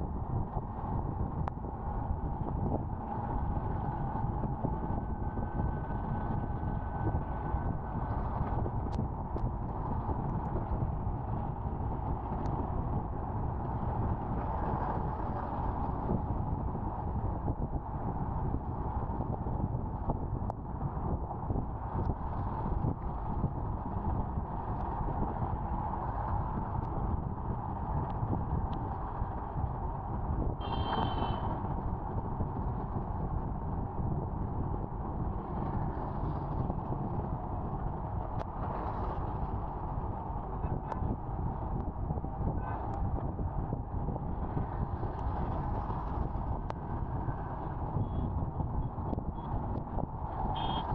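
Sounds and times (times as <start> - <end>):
wind rumble on microphone: 0.0 - 50.9
scooter road noise: 30.4 - 50.9.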